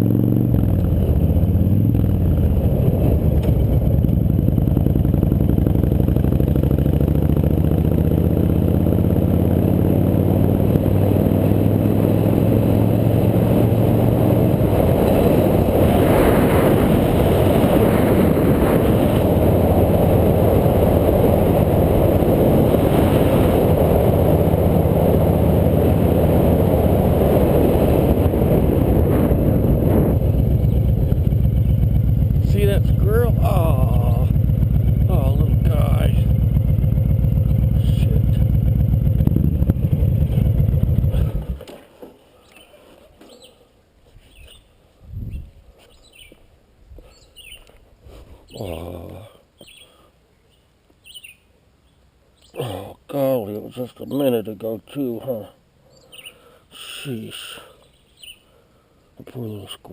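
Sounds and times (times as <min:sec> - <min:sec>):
motorcycle engine running: 0:00.0 - 0:41.7.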